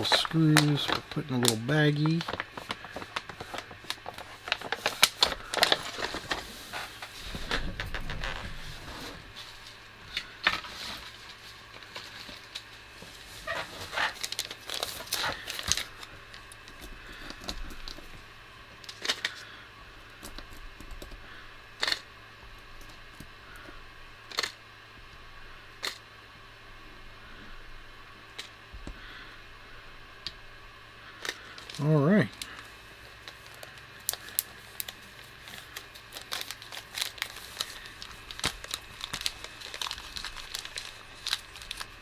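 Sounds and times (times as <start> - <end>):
plastic bag crinkling: 0.0 - 18.2, 31.3 - 42.0.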